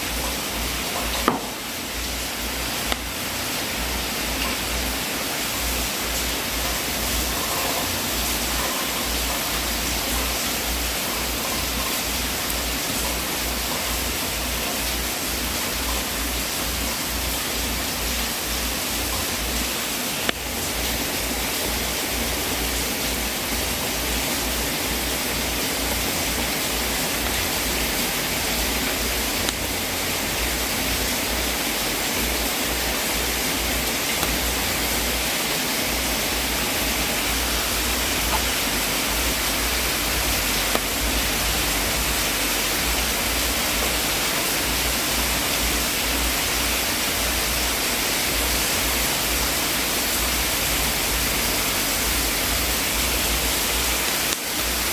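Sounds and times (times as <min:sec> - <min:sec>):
fire crackling pops: 0:40.6 - 0:41.2.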